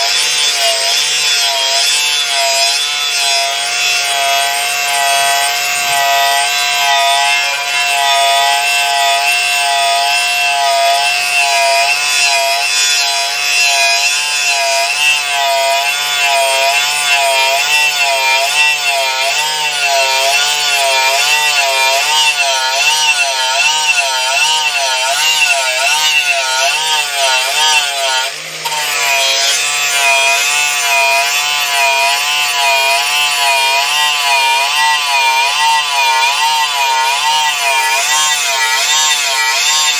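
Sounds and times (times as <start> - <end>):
power tool motor whine: 0.0 - 39.9.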